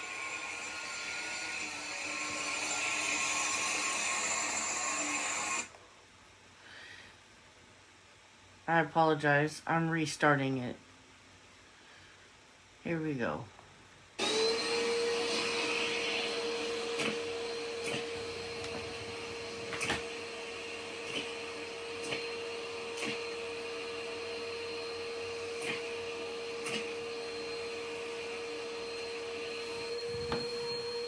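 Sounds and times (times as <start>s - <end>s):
vacuum cleaner motor whine: 0.0s - 5.8s, 14.2s - 31.0s.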